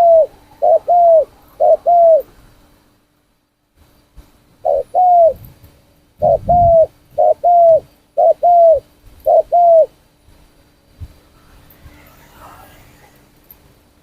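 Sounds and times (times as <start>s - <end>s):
dove cooing: 0.0s - 2.3s, 4.6s - 5.4s, 6.2s - 10.0s.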